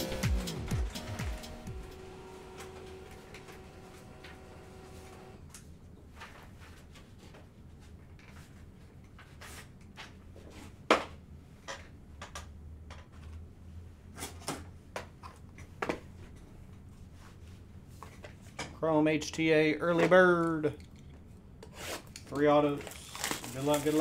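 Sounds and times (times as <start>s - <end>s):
card packaging clicks and scrapes: 21.7s - 24.0s.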